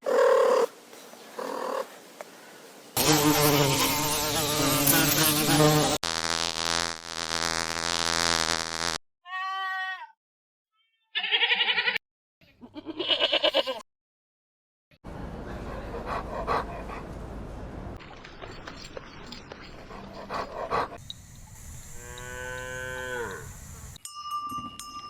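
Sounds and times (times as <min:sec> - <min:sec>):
animal bleating: 0:09.3 - 0:10.2, 0:11.0 - 0:12.0, 0:12.6 - 0:13.8.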